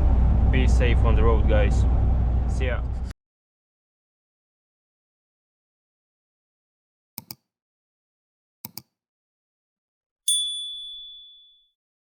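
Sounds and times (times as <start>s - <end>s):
sharp double clicks: 7.2s - 7.4s.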